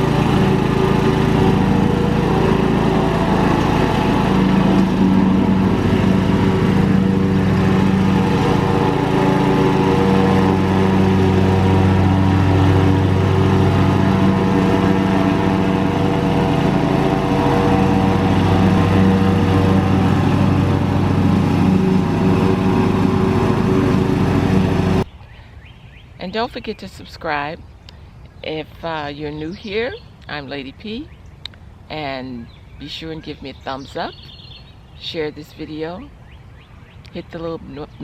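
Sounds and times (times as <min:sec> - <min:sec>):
lawnmower engine running: 0:00.0 - 0:25.1.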